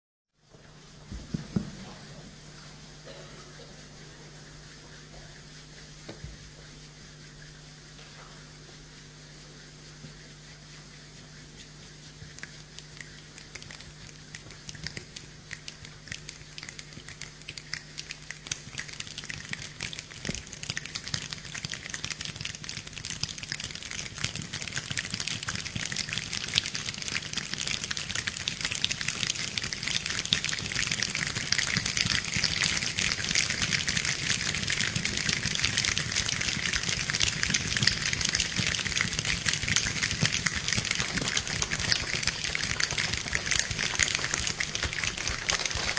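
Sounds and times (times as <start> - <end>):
hands tapping like rain: 12.3 - 45.9.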